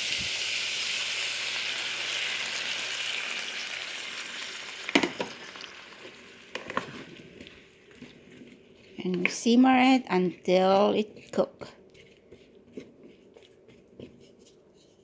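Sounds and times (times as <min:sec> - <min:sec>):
vegetables sizzling in a pan: 0:00.0 - 0:08.1.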